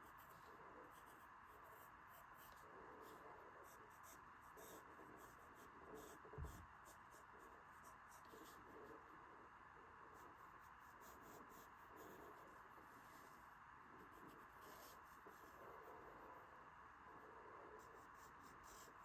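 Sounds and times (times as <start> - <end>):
drawing tool scratching on paper: 0.0 - 9.0, 14.0 - 16.4, 17.8 - 19.0.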